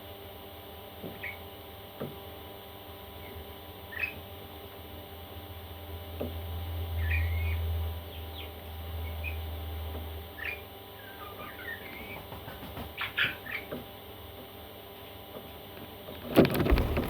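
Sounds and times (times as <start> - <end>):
low hum: 16.4 - 17.0.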